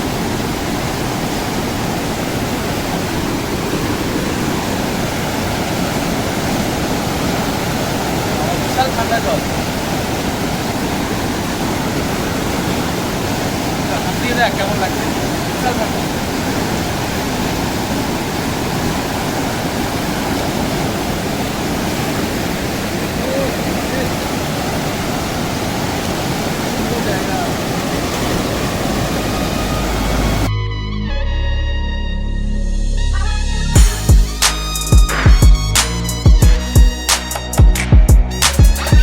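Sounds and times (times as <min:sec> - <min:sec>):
mountain river rushing: 0:00.0 - 0:30.5.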